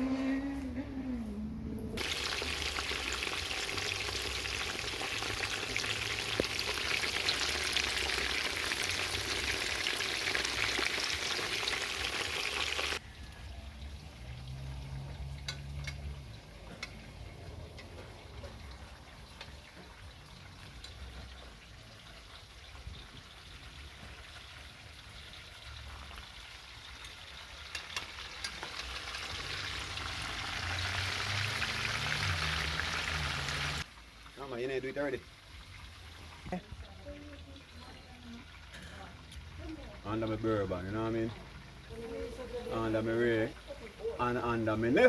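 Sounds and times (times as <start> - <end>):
low hum: 0.0 - 2.0
food sizzling in hot oil: 2.0 - 13.2, 18.0 - 45.0.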